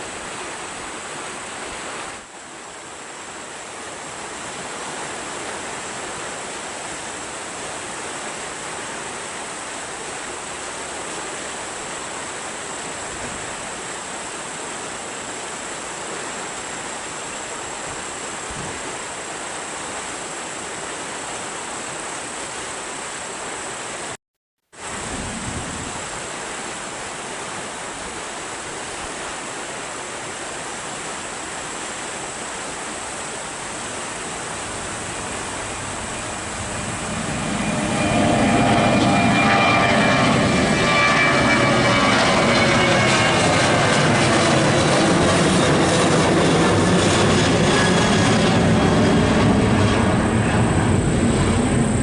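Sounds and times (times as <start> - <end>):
outdoor hiss: 0.0 - 40.8
airliner engines whining: 33.8 - 52.0.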